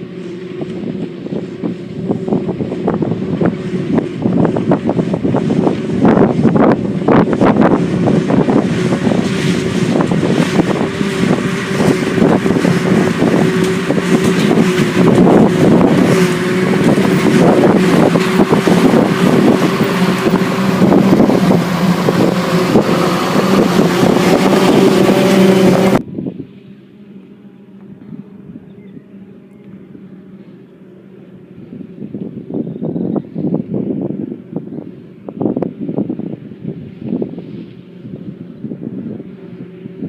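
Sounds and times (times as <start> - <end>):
harvesting machine engine drone: 0.0 - 40.0
wind buffeting microphone: 0.0 - 40.0
machinery clattering: 7.1 - 26.0.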